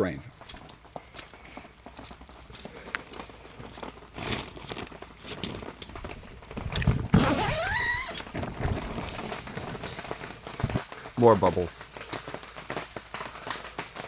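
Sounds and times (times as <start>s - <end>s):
footsteps: 0.0s - 14.0s
rustling and knocking in tent: 0.4s - 14.0s
brief rising squeak: 7.2s - 8.2s.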